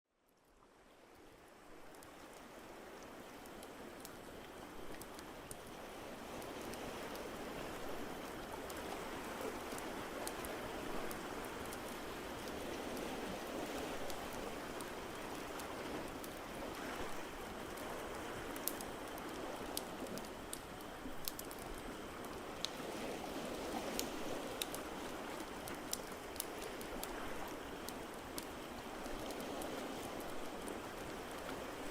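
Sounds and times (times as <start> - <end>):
crackling fire popping: 8.1 - 22.8, 23.7 - 31.9.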